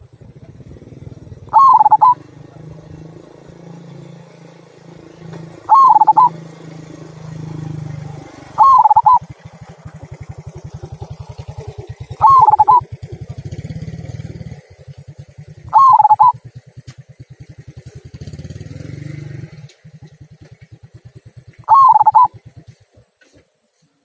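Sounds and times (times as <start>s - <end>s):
dove cooing: 0.4s - 3.0s, 5.5s - 6.9s, 8.5s - 9.4s, 11.6s - 13.2s, 15.6s - 16.4s, 21.6s - 22.6s.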